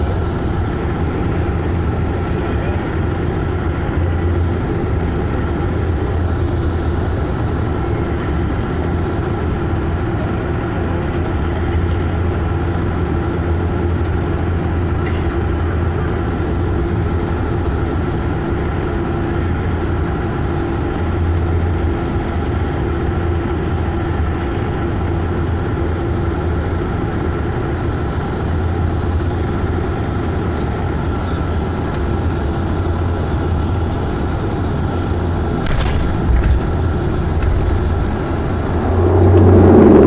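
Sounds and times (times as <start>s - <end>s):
airplane cabin engine drone: 0.0s - 40.0s.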